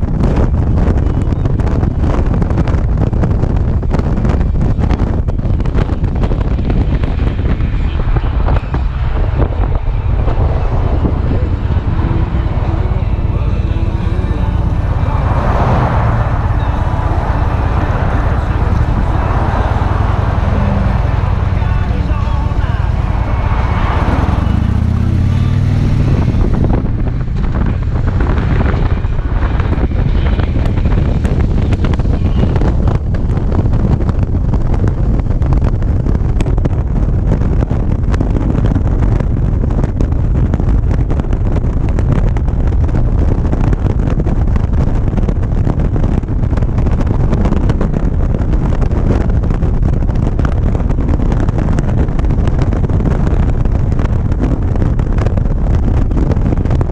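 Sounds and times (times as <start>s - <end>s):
wind rush on microphone: 0.0s - 56.9s
motorcycle engine: 2.6s - 37.4s.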